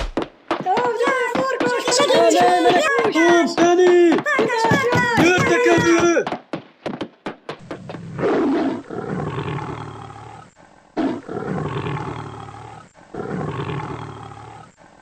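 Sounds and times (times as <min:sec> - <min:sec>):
deep animal roars: 0:07.6 - 0:14.9.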